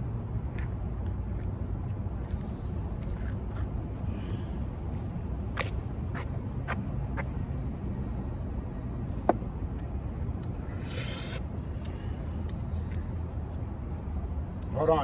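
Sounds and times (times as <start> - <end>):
steady low rumble: 0.0 - 15.0
hissing breath: 10.7 - 12.2.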